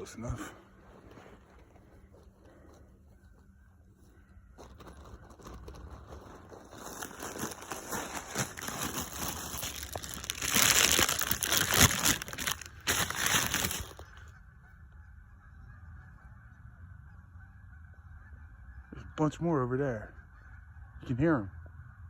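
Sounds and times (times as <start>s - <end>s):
loud rustling crinkling: 4.6s - 14.3s
geese honking: 7.1s - 22.0s.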